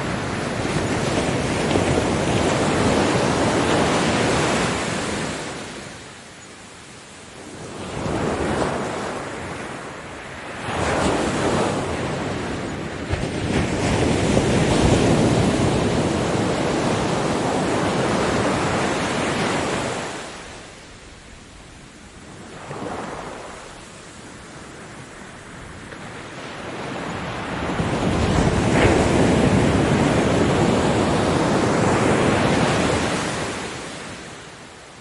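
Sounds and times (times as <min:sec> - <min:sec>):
ocean waves breaking on beach: 0:00.0 - 0:35.0.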